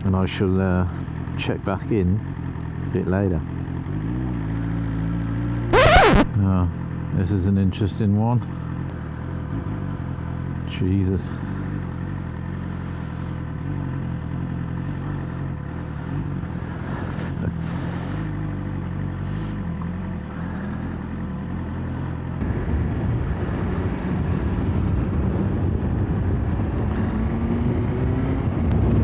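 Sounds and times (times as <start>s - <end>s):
motorcycle engine running: 11.4s - 22.4s.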